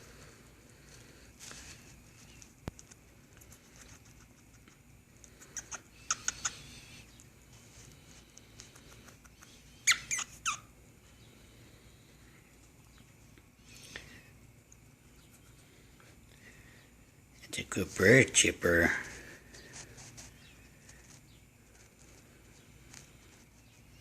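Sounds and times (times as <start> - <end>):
cockatiel chirping: 5.6 - 7.2, 9.3 - 10.7.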